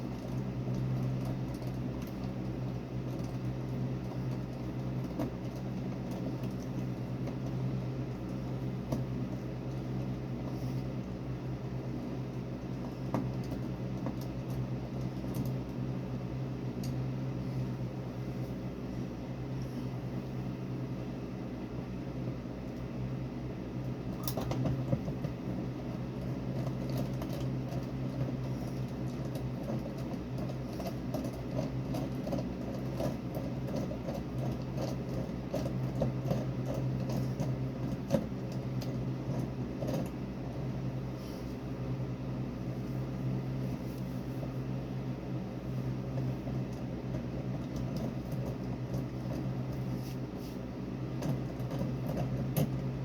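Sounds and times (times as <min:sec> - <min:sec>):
low mechanical hum: 0:00.0 - 0:53.0
small clicks and taps: 0:12.3 - 0:15.8, 0:26.2 - 0:40.2.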